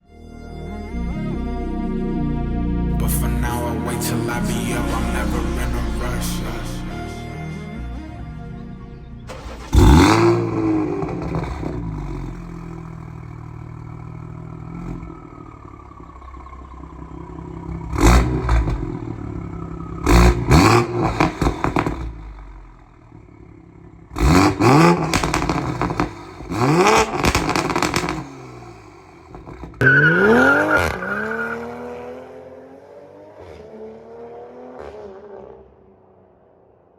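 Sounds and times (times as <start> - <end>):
car engine revving: 0.9 - 36.3
exhaust crackling and popping: 9.2 - 31.0.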